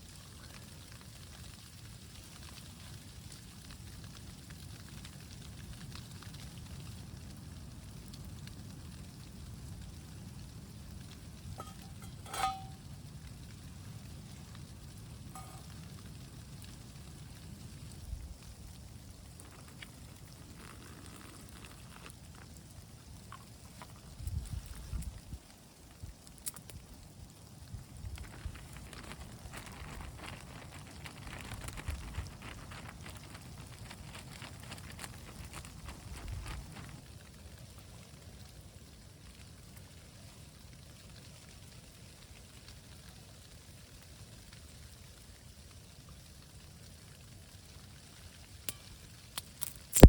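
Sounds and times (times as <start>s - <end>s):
rain pattering: 0.0s - 50.0s
low wind rumble: 27.7s - 37.0s.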